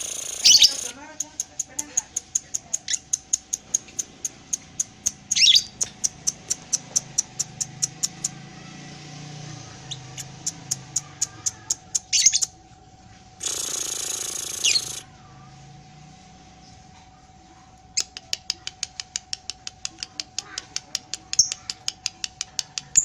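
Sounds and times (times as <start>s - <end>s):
squeaky bird calls: 0.0s - 3.2s, 3.8s - 8.3s, 9.8s - 12.6s, 13.4s - 15.0s
lovebird chirping: 0.0s - 8.4s, 9.8s - 12.6s, 13.4s - 15.0s.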